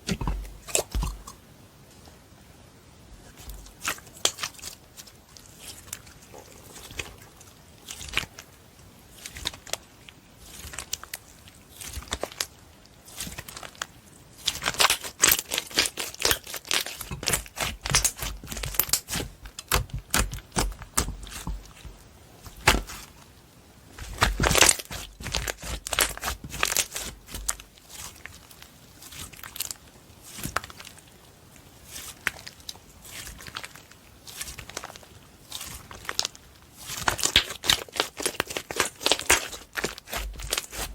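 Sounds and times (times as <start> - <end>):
slime squished by hand: 3.2 - 8.5, 9.1 - 23.2, 23.9 - 31.2, 31.8 - 40.9.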